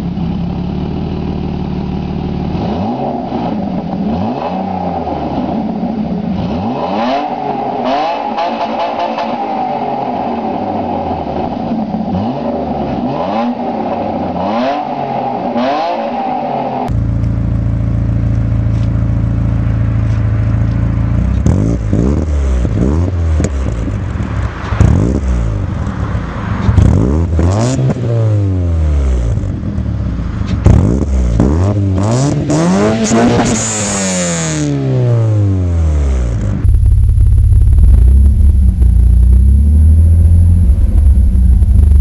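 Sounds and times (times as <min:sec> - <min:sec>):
car engine idling: 0:00.0 - 0:02.6, 0:16.9 - 0:22.0, 0:35.5 - 0:42.0
car engine revving: 0:01.4 - 0:42.0.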